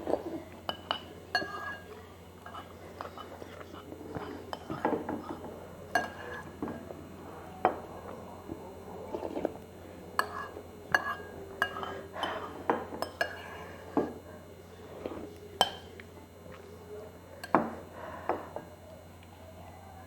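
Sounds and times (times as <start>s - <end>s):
cutlery clinking against bowl: 0.1s - 6.9s, 10.2s - 14.2s, 15.6s - 16.1s.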